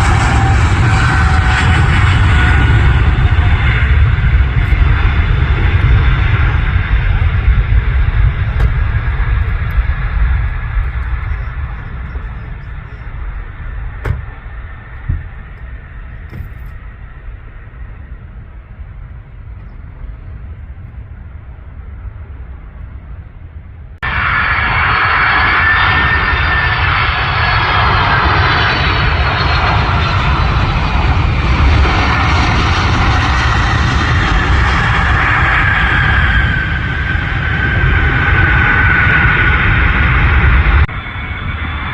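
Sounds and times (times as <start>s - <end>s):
close jet engine whine: 0.0s - 41.9s
jet engine rumble and whine: 0.0s - 41.9s.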